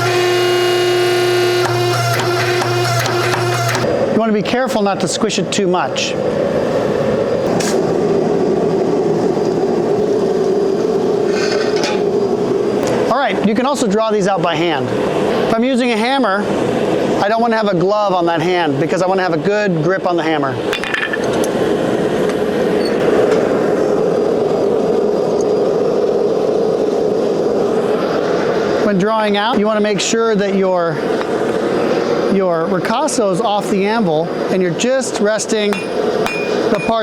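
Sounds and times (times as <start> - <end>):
forging press humming: 0.0 - 4.2, 35.5 - 37.0
forge roaring: 5.6 - 17.2.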